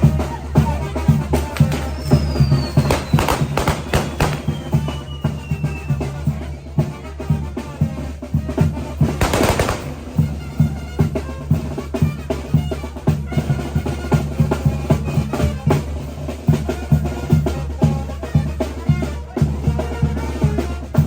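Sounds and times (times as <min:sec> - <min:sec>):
brass band playing: 0:00.0 - 0:21.0
steady drum beat: 0:00.0 - 0:21.0
loud crackling burst: 0:01.8 - 0:05.6, 0:09.2 - 0:10.4.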